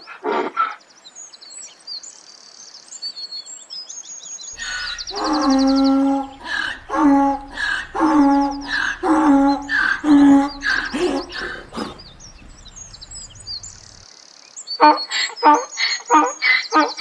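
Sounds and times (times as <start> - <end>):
birds calling repeatedly: 4.6 - 14.0
birds chirping and twittering: 4.6 - 14.0.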